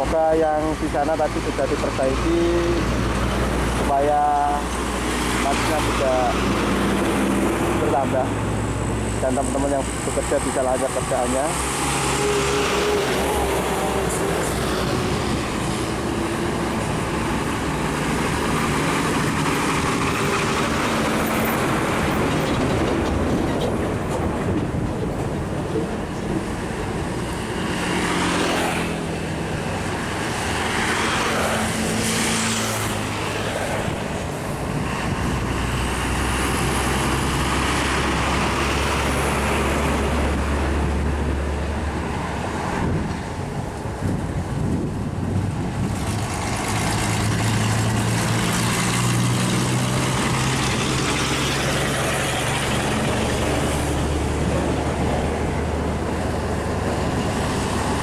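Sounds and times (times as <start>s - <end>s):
deep heavy engine rumble: 0.0s - 58.0s
heavy road traffic: 0.0s - 58.0s
vehicle passing by: 0.7s - 23.3s, 24.8s - 58.0s.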